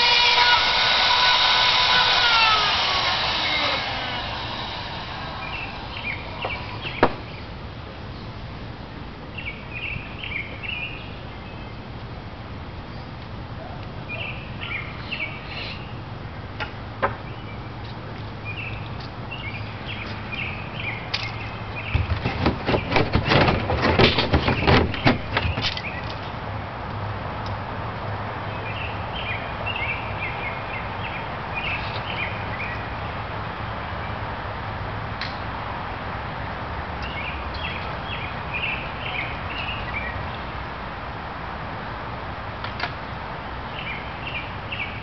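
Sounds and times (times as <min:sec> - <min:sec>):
steady low hum: 0:00.0 - 0:09.4
loud rapid clattering: 0:22.0 - 0:26.2.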